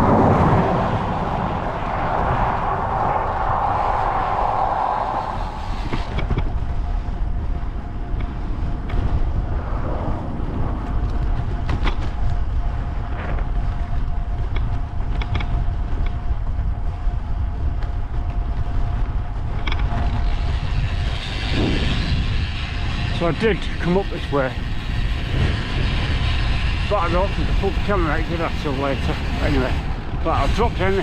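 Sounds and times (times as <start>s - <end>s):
faint steady whine: 0.0s - 31.0s
wind buffeting microphone: 0.0s - 31.0s.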